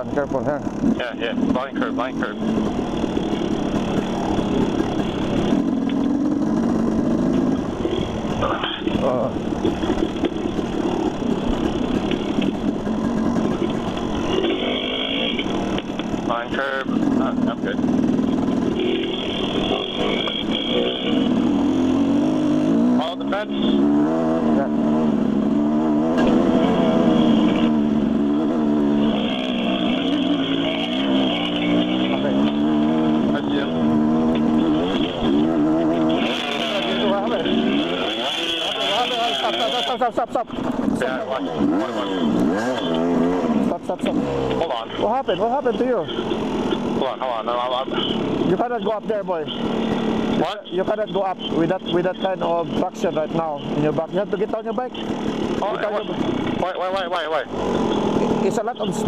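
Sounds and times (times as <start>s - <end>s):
constant rushing noise: 0.0s - 59.0s
dirt bike engine running: 0.0s - 59.0s.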